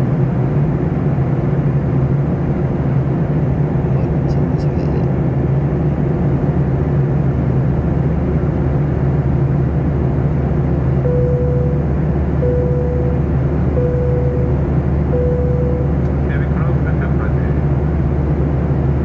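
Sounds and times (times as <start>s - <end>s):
airliner cabin drone: 0.0s - 19.0s
beep: 11.0s - 16.0s.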